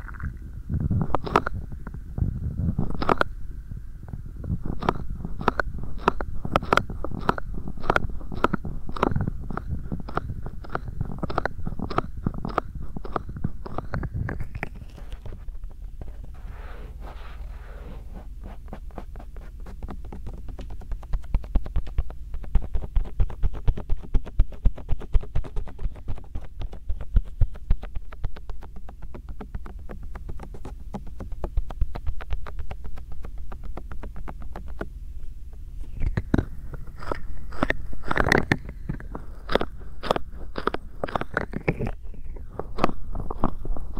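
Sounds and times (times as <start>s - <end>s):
light pats on microphone: 4.1s - 39.2s
hands rubbing microphone: 4.5s - 43.9s.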